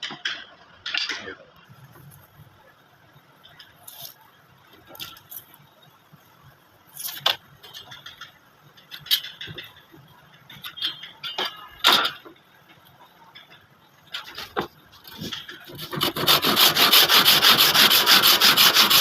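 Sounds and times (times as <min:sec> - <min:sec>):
hand tools and wood knocking: 0:13.3 - 0:19.0.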